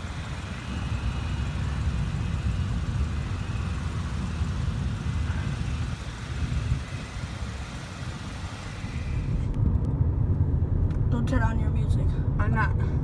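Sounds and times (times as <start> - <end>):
jet aircraft taking off: 0.0 - 9.6.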